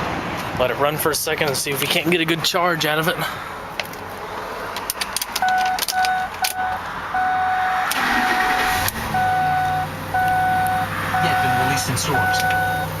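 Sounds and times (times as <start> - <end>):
car warning chime beeping: 5.4 - 13.0.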